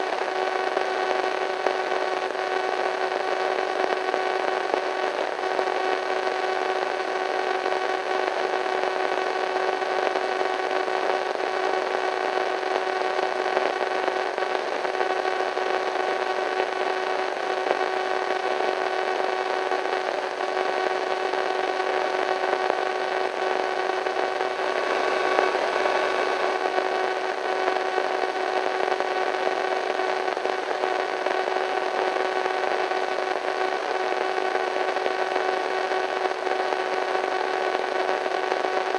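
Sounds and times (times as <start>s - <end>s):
radio static hiss: 16.6s - 36.0s
steady humming tones: 24.4s - 27.6s.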